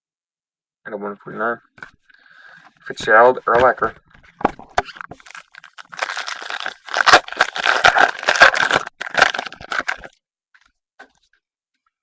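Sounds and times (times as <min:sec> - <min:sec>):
foil wrapper crinkling and tearing: 0:04.8 - 0:10.2.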